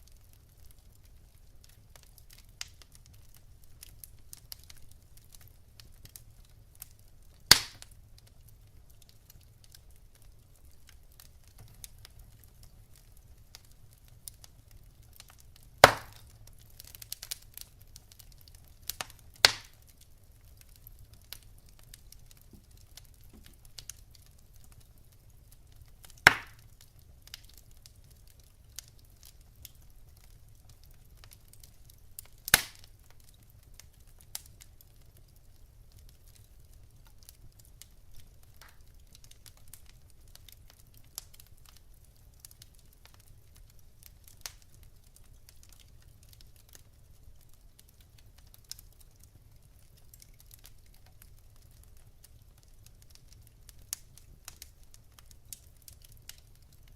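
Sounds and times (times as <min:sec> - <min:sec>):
wood fire crackling: 0:00.0 - 0:56.9
sharp loud fire pops: 0:07.5 - 0:07.8, 0:15.8 - 0:16.2, 0:26.3 - 0:26.6.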